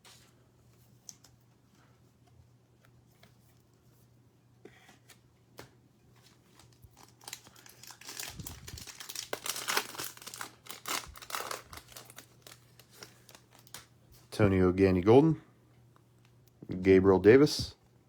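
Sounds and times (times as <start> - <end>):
plastic wrapper tearing and crinkling: 6.6 - 13.9.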